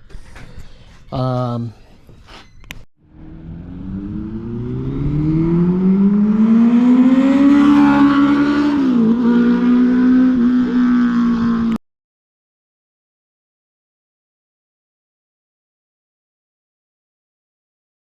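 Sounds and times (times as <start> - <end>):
motorcycle engine revving: 3.0 - 11.8.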